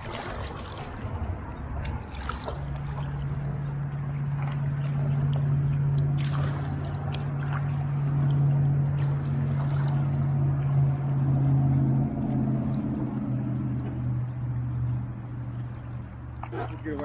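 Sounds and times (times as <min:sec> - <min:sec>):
low engine drone: 0:00.0 - 0:17.0
paddle splashes and drips: 0:00.0 - 0:17.0.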